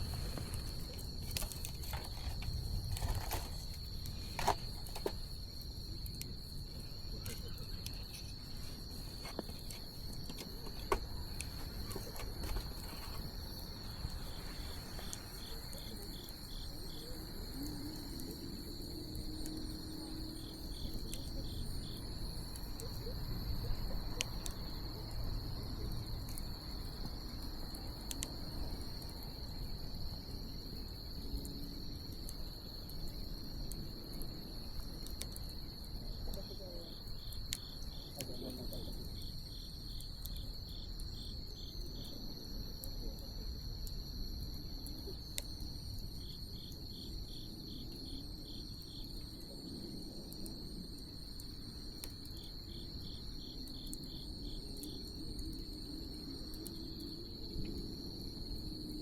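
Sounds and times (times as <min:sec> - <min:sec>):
bonfire crackling and popping: 0:00.0 - 0:41.9
crickets chirping: 0:00.0 - 0:59.0
low steady rush of fire: 0:00.0 - 0:59.0.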